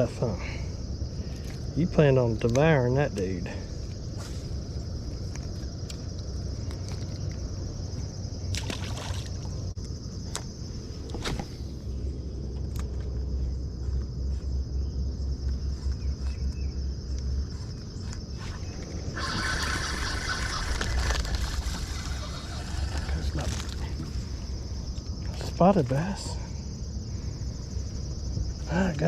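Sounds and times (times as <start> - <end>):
crickets trilling: 0.0 - 29.0
river water sloshing: 8.4 - 9.7.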